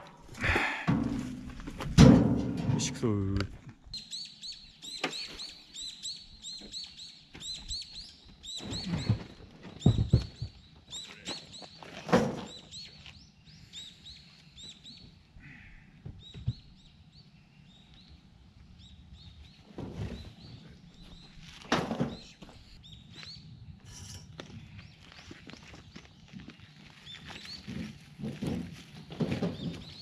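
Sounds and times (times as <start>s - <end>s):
loud clunks: 0.0s - 3.1s
small birds chirping: 3.9s - 27.9s.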